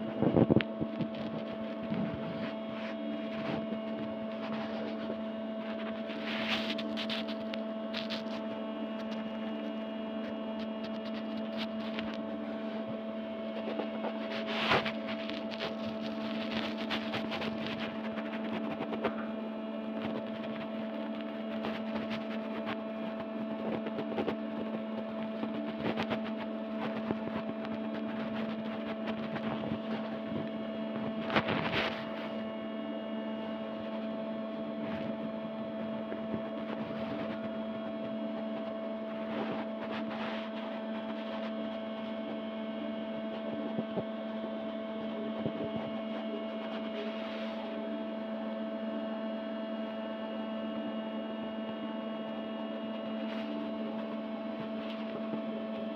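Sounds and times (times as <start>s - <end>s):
steady electrical hum: 0.0s - 55.9s.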